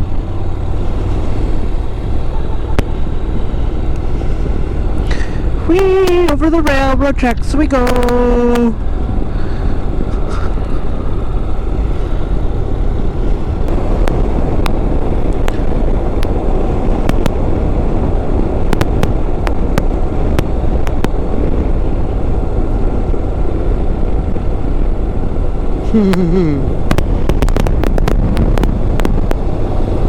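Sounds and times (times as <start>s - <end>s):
motorcycle engine and road noise: 0.0s - 30.0s
wind rush over microphone: 0.0s - 30.0s
sharp clicks: 17.0s - 17.4s.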